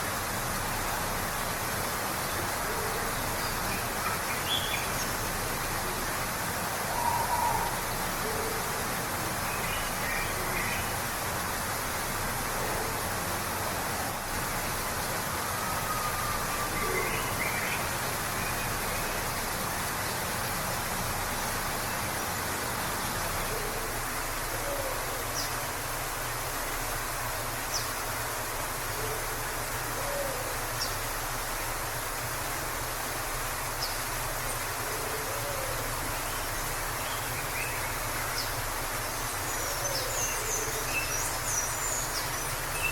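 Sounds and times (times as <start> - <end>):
waterfall rushing: 0.0 - 42.9
bird low calls: 6.9 - 8.6.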